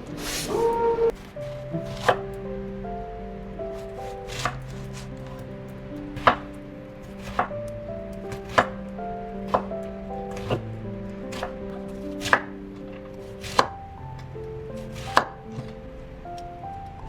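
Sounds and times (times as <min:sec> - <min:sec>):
soft background music: 0:00.0 - 0:17.0
knife chopping on cutting board: 0:01.5 - 0:02.2, 0:03.8 - 0:05.4, 0:06.2 - 0:06.5, 0:07.1 - 0:07.5, 0:08.3 - 0:08.8, 0:09.5 - 0:09.7, 0:10.3 - 0:10.6, 0:11.3 - 0:12.5, 0:13.3 - 0:13.7, 0:14.9 - 0:15.4.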